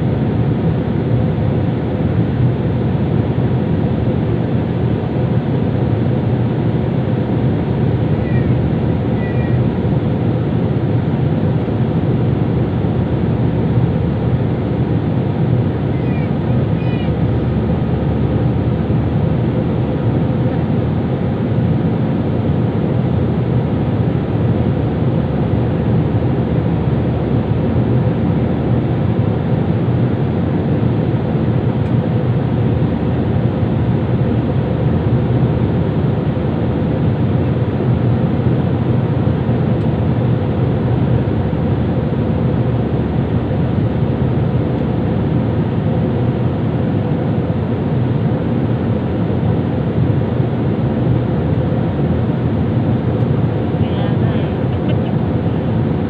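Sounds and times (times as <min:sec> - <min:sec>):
airliner cabin engine rumble: 0:00.0 - 0:56.0.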